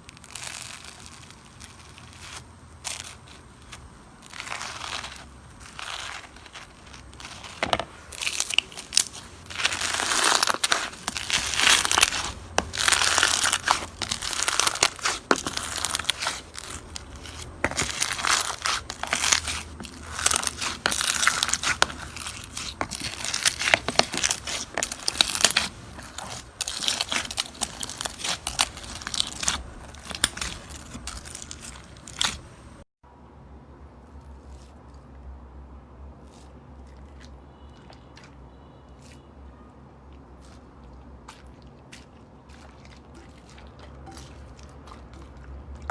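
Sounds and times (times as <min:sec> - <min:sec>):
slime crackling and popping: 0:00.0 - 0:32.8
soft slime squishing: 0:00.0 - 0:32.8, 0:36.2 - 0:45.9.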